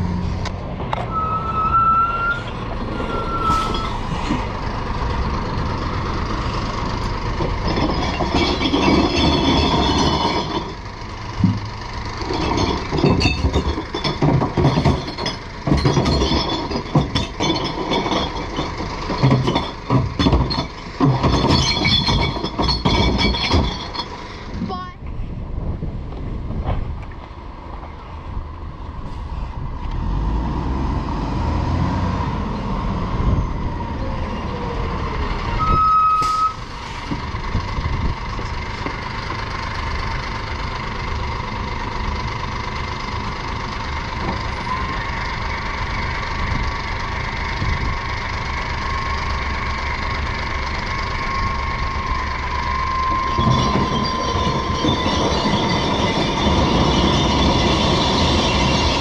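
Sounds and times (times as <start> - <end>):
truck engine running: 0.0 - 30.5, 31.1 - 59.0
short beep: 1.1 - 4.0, 35.6 - 36.6.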